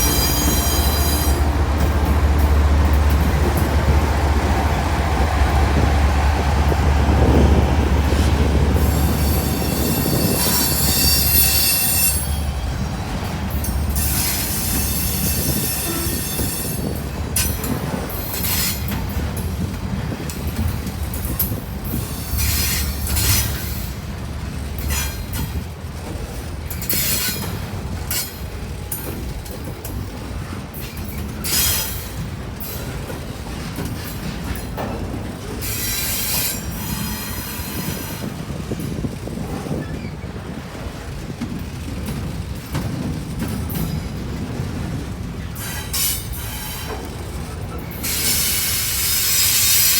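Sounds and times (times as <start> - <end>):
wheel flanges squealing: 0.0 - 19.3
freight train rumbling on rails: 0.0 - 49.9.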